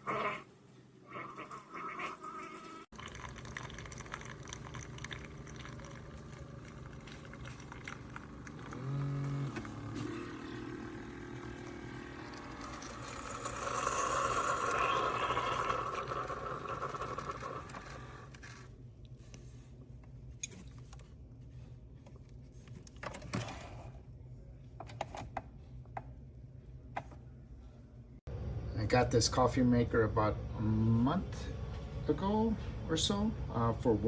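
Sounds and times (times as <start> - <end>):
coffee maker brewing: 1.3 - 19.5.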